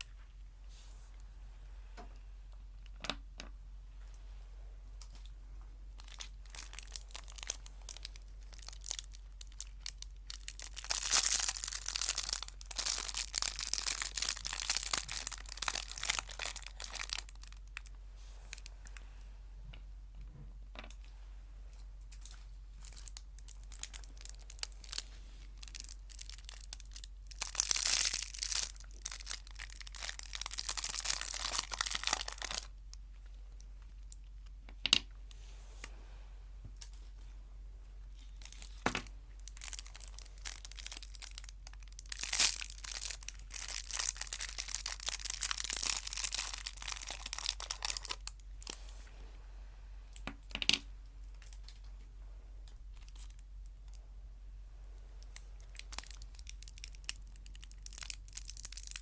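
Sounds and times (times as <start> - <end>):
snack wrapper crinkling: 6.0 - 18.7, 22.2 - 32.7, 38.2 - 48.8, 55.3 - 59.0.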